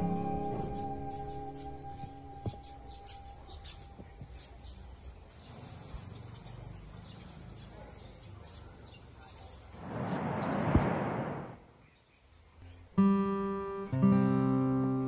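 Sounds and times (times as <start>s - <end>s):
faint bird chirps: 0.0s - 10.8s
outdoor background noise: 0.0s - 15.0s.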